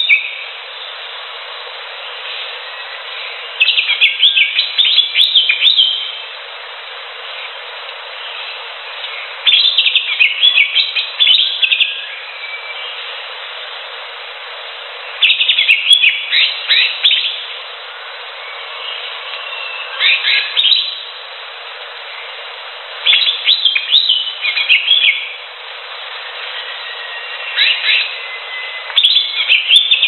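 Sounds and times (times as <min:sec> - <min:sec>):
bird chirping song: 0:00.0 - 0:01.0, 0:02.0 - 0:06.3, 0:07.3 - 0:13.2, 0:15.0 - 0:17.5, 0:18.3 - 0:21.2, 0:22.0 - 0:25.4, 0:26.1 - 0:30.0
background hiss: 0:00.0 - 0:30.0.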